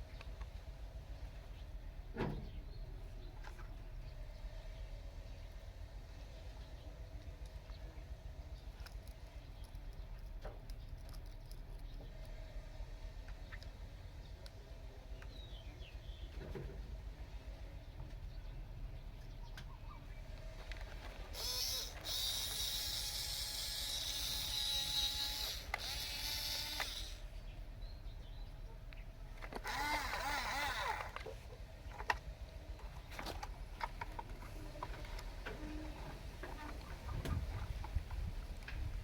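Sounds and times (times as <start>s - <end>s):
toy motors whirring: 20.6s - 27.3s, 29.4s - 32.2s.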